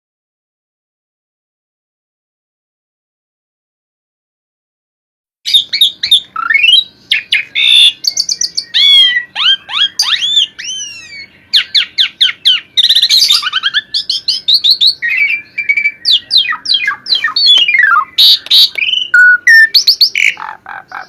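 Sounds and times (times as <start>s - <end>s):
starling singing: 5.5s - 21.0s.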